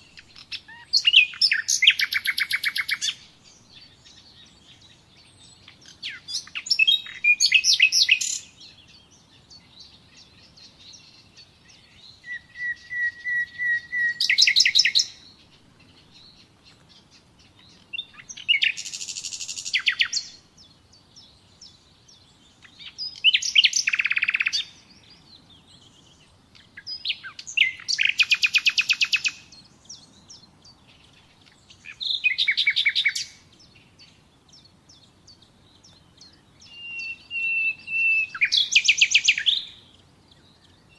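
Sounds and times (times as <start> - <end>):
nightingale singing trills: 0.0 - 40.9.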